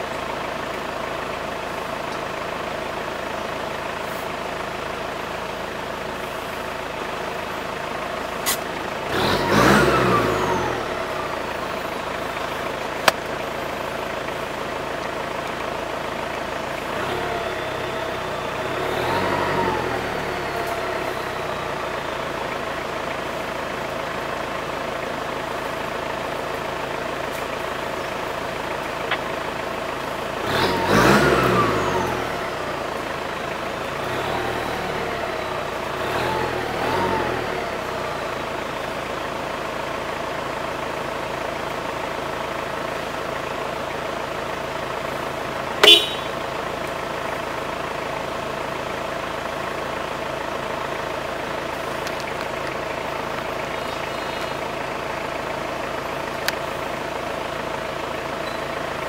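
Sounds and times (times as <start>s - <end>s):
vehicle engines idling: 0.0s - 59.0s.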